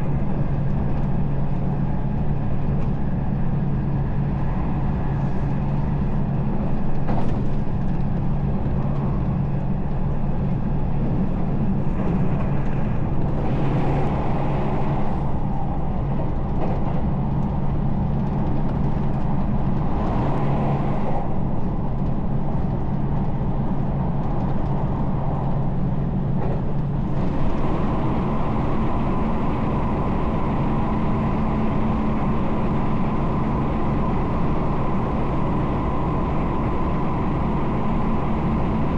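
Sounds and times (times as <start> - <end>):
low motor hum: 0.0 - 38.9
train wheels rumbling on rail: 0.0 - 38.9
thin steady whine: 27.1 - 38.9.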